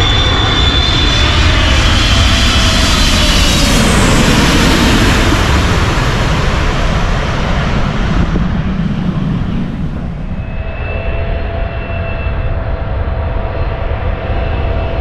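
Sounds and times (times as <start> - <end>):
jet airliner engine roar: 0.0 - 15.0.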